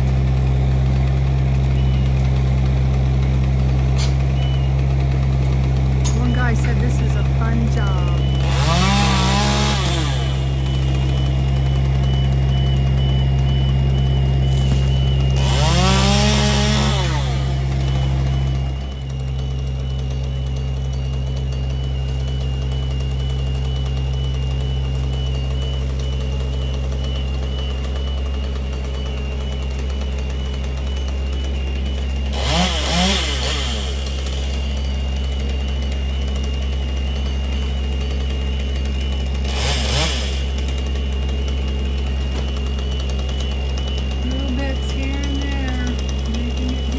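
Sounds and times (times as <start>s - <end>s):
chainsaw revving: 0.0s - 46.9s
heavy machine engine running: 0.0s - 46.9s.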